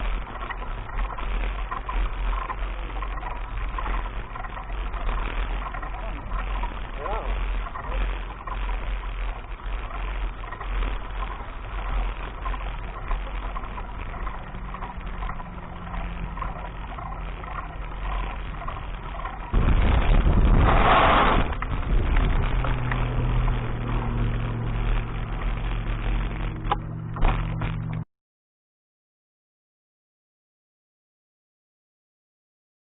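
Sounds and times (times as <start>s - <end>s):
faint ticking: 0.0s - 20.7s, 21.4s - 28.0s
low rumble: 0.0s - 28.1s
vehicle engine humming: 0.0s - 28.1s
loud rushing noise: 18.4s - 27.9s.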